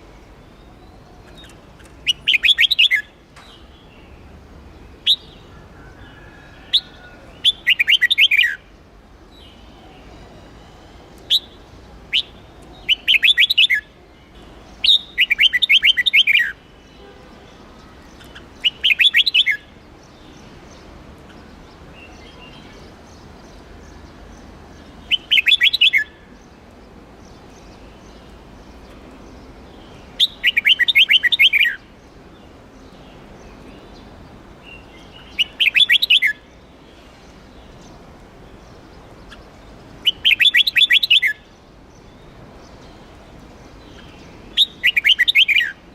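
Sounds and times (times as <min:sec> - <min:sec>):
bulbul singing: 0:00.0 - 0:05.6, 0:06.8 - 0:08.8, 0:09.4 - 0:26.4, 0:27.2 - 0:36.7, 0:38.6 - 0:45.9
sharp bird chirps: 0:00.6 - 0:03.7, 0:18.2 - 0:19.6.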